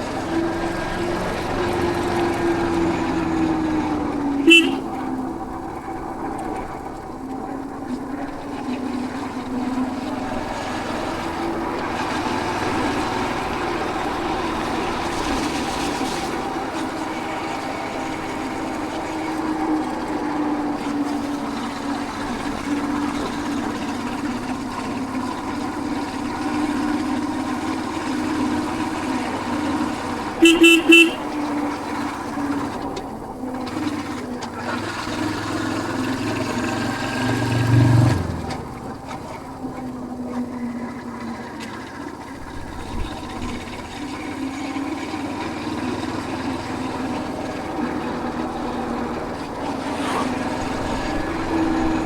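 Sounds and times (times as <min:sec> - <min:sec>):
motorcycle engine running: 0:00.0 - 0:52.0
horn toots: 0:04.4 - 0:05.2, 0:30.4 - 0:31.8.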